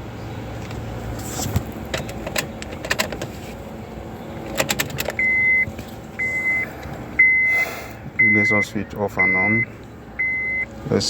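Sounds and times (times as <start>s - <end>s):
high electronic beeps: 5.2s - 10.6s.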